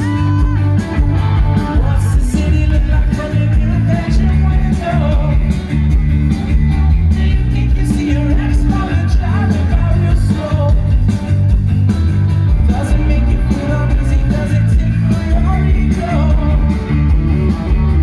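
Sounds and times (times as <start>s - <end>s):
person singing: 0.0s - 5.7s, 7.0s - 11.1s, 12.6s - 17.6s
live rock band playing: 0.0s - 18.0s.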